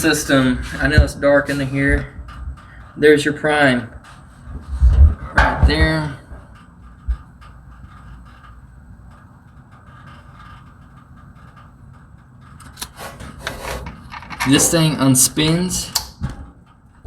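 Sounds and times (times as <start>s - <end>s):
low background hum: 0.0s - 17.0s
rustling and clicking: 3.7s - 17.0s.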